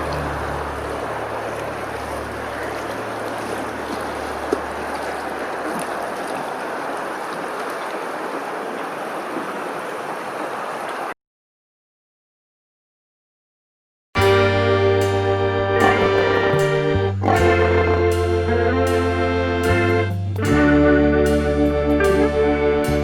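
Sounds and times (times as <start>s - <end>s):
low motor hum: 0.0s - 5.5s
rushing water: 0.0s - 11.2s.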